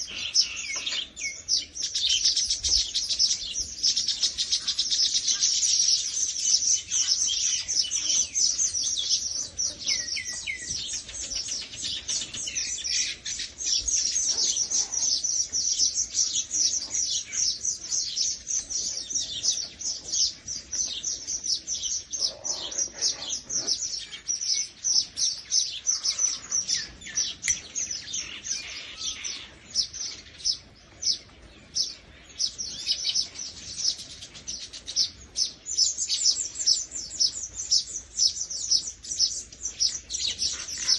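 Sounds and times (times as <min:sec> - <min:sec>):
small birds chirping chatter: 0:00.0 - 0:40.9.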